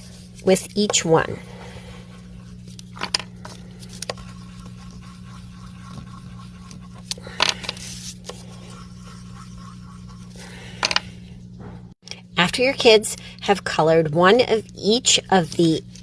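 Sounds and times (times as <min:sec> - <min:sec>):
steady low hum: 0:00.0 - 0:16.0
wax crayon scratching on paper: 0:01.9 - 0:10.7.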